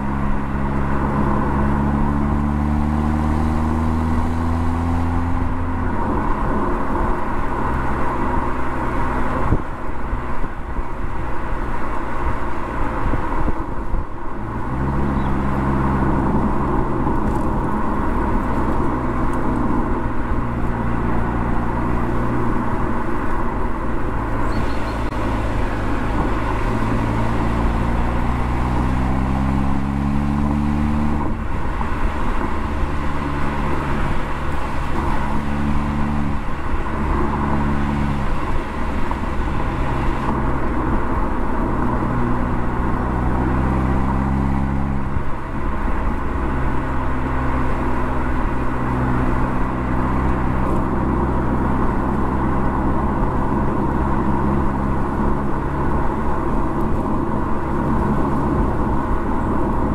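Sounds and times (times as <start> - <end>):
car engine and exhaust accelerating: 0.0 - 59.9
tyre and road noise: 0.0 - 59.9.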